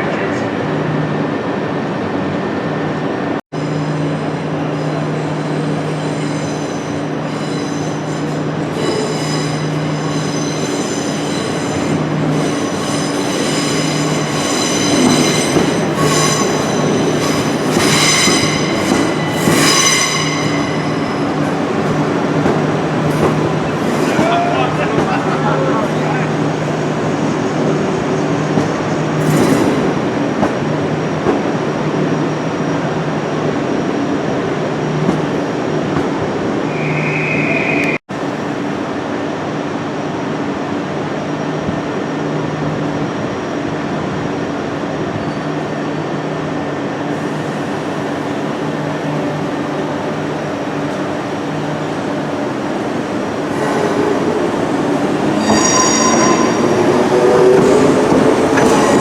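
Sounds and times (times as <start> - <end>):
train running: 3.6 - 45.2, 46.2 - 59.0
short high squeal: 4.7 - 22.0, 36.7 - 38.0, 55.3 - 57.2.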